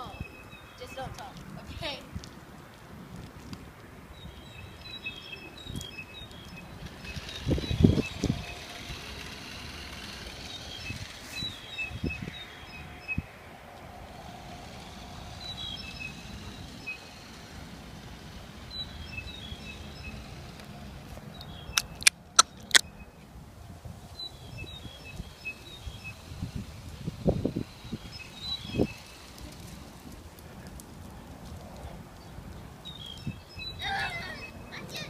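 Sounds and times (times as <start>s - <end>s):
bird chirping: 4.1s - 9.2s, 15.2s - 17.4s, 18.6s - 20.5s, 21.2s - 23.3s, 24.1s - 29.5s, 32.2s - 35.0s
low outdoor rumble: 6.2s - 33.2s
sharp clicks: 21.4s - 22.9s.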